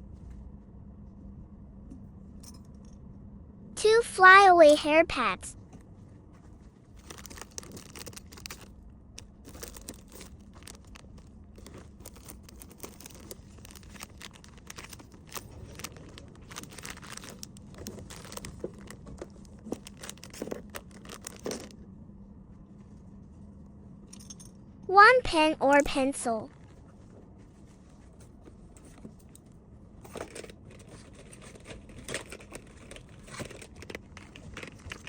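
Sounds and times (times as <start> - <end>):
faint steady hum: 0.0 - 35.0
packaging crinkling and rustling: 6.6 - 21.8, 30.1 - 35.0.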